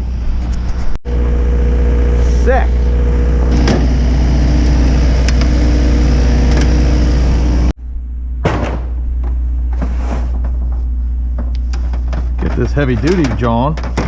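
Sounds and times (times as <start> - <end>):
vehicle engine idling: 1.1 - 7.7
quiet hum: 7.8 - 14.0
knocks: 8.4 - 10.8, 11.4 - 14.0.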